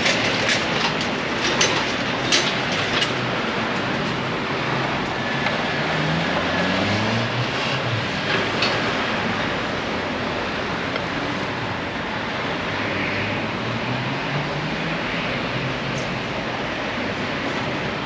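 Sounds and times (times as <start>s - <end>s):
dense city traffic: 0.0s - 18.0s.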